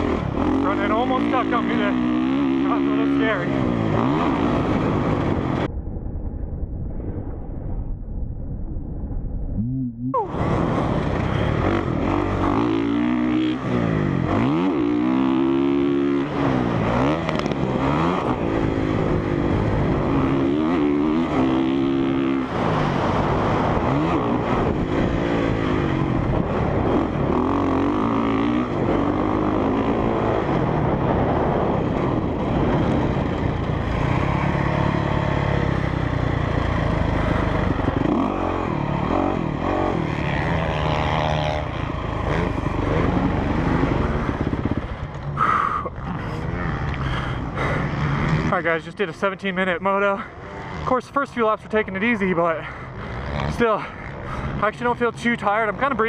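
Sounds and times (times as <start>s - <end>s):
motorcycle engine revving: 0.0s - 5.7s, 9.6s - 56.0s
wind rushing: 3.6s - 12.8s, 41.8s - 45.1s.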